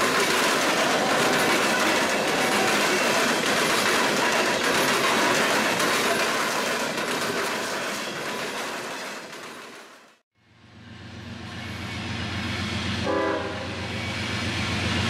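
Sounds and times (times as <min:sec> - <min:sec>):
rattling clatter: 0:00.0 - 0:10.0
freight cars rolling past: 0:00.0 - 0:13.1.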